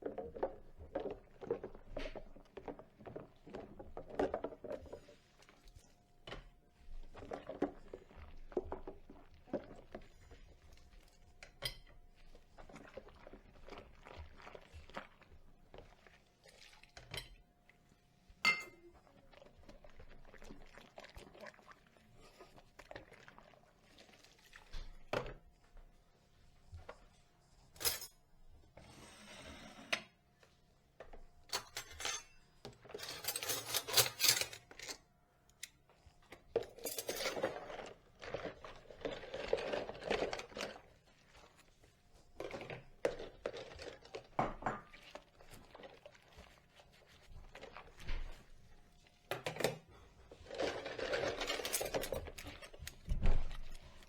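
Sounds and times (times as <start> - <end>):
dishes clinking: 18.4 - 19.0, 31.5 - 34.9.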